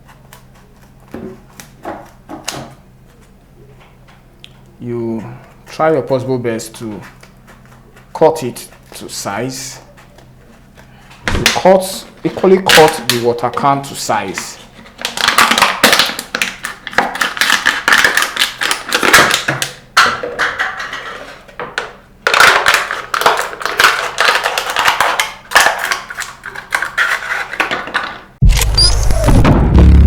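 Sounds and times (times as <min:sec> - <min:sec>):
music with heavy bass: 0:28.4 - 0:30.0.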